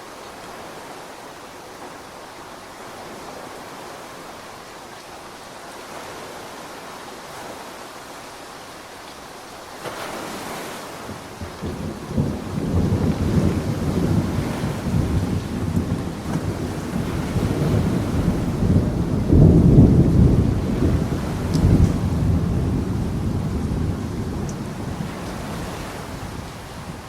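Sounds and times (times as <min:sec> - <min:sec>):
rain hiss: 0:00.0 - 0:27.0
thunder rumbling: 0:10.9 - 0:27.0.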